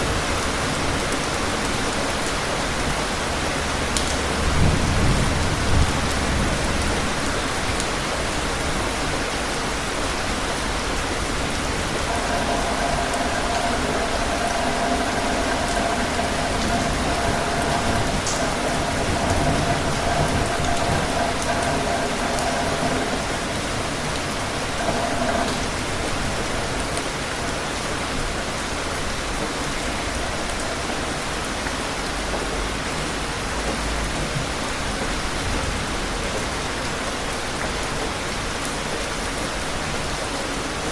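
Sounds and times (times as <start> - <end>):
rain pattering: 0.0 - 40.9
faint steady tone: 12.0 - 27.7.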